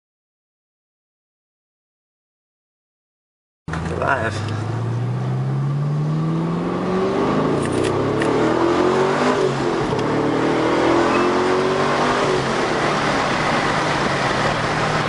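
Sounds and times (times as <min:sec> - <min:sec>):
car exhaust accelerating: 0:03.7 - 0:15.0.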